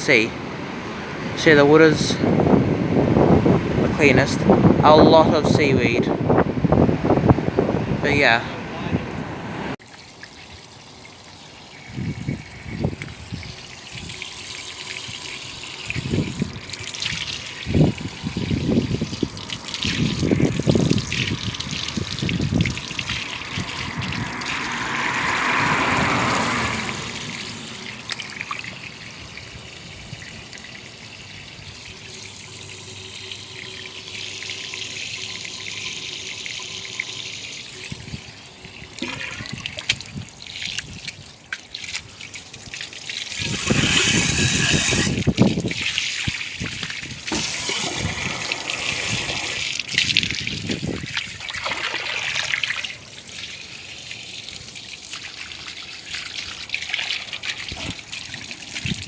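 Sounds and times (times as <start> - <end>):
water trickling and splashing: 9.8 - 59.0.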